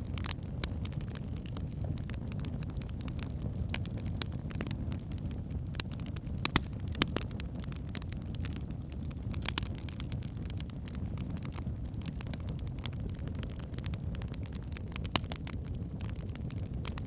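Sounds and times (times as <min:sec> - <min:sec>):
burning logs crackling and popping: 0:00.0 - 0:17.0
low rumble of flames: 0:00.0 - 0:17.0.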